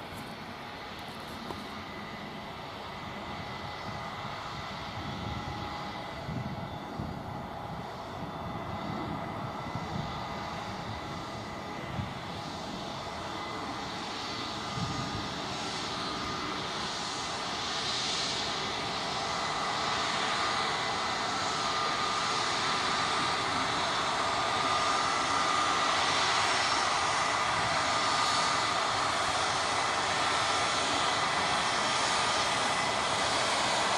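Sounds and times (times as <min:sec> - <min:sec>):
jet engines whining: 0:00.0 - 0:33.9.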